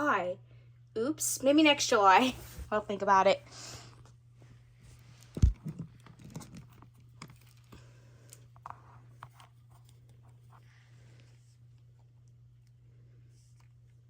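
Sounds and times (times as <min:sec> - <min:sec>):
low steady hum: 0:00.0 - 0:14.0
handling clicks and rustles: 0:04.9 - 0:10.6.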